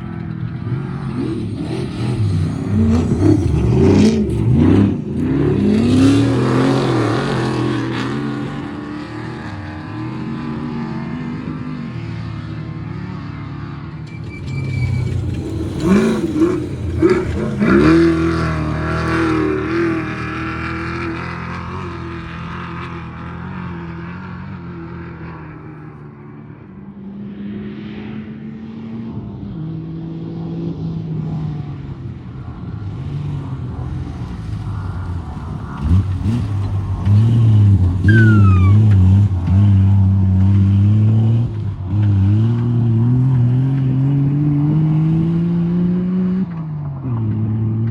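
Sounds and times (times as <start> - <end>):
race vehicle engines revving: 0.0 - 26.0, 27.0 - 47.9.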